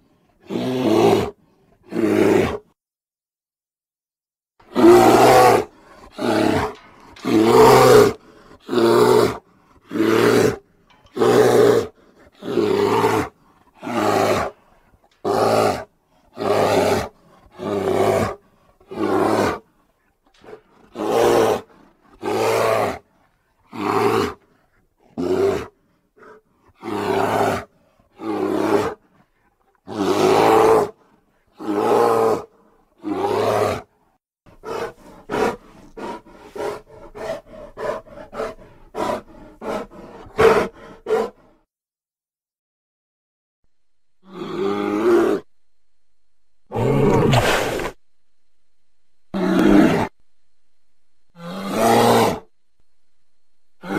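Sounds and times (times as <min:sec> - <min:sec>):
bear roaring: 0:00.4 - 0:02.7, 0:04.7 - 0:14.6, 0:15.2 - 0:23.1, 0:23.7 - 0:24.4, 0:25.0 - 0:29.1, 0:29.8 - 0:33.9, 0:34.6 - 0:41.4, 0:44.2 - 0:45.5, 0:46.7 - 0:48.0, 0:49.3 - 0:50.2, 0:51.3 - 0:52.5.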